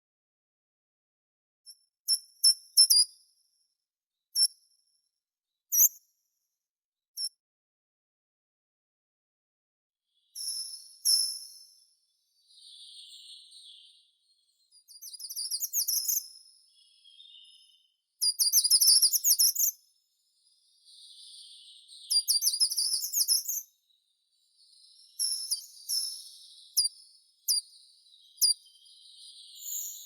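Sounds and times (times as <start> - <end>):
songbird trilling: 12.5 - 14.1, 15.1 - 17.8, 20.8 - 23.6.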